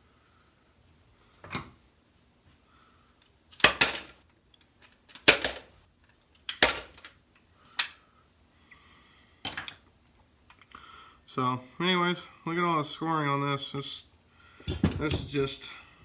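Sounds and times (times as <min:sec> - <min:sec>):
metal parts clattering on workbench: 0:03.6 - 0:04.2, 0:05.1 - 0:05.8, 0:06.6 - 0:07.1, 0:14.7 - 0:15.8.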